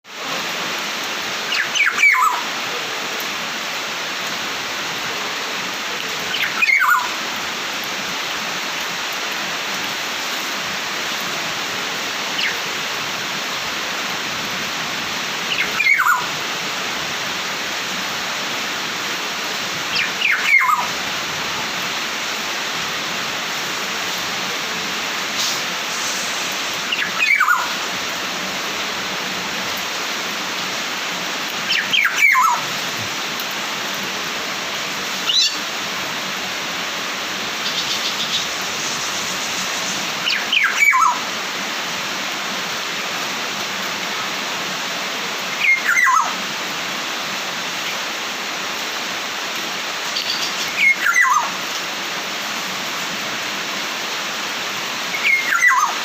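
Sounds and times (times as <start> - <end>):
steady hiss: 0.1 - 55.3
songbird downward call: 1.6 - 2.5, 6.4 - 7.1, 15.6 - 16.3, 20.0 - 20.9, 26.9 - 27.8, 31.8 - 32.6, 40.3 - 41.2, 45.6 - 46.3, 50.2 - 51.5, 55.2 - 56.0.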